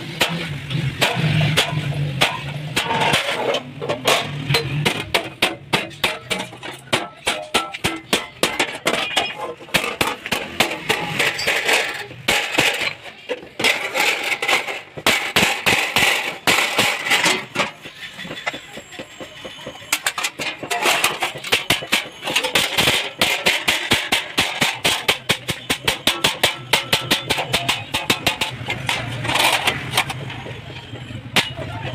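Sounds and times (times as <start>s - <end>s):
metal tapping and clinking: 1.0s - 18.8s, 19.9s - 31.9s.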